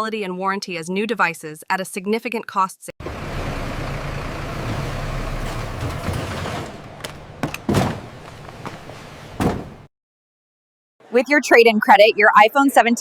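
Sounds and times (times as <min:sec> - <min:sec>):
sharp knocks: 0:05.5 - 0:09.9.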